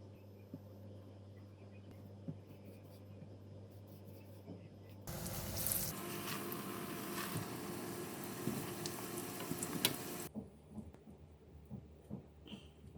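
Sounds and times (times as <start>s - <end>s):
food sizzling in hot oil: 5.1s - 10.3s.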